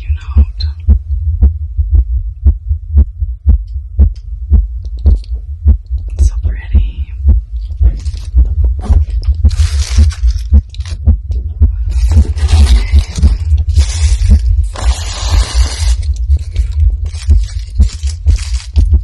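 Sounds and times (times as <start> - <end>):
heartbeat thumps: 0.0 - 19.0
rustling and scraping: 7.5 - 11.1, 11.8 - 19.0.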